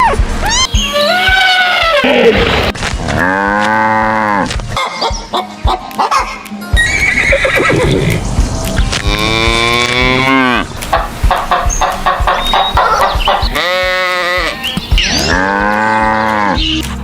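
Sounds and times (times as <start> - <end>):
farm animal crying: 0.0 - 2.4, 11.4 - 16.8.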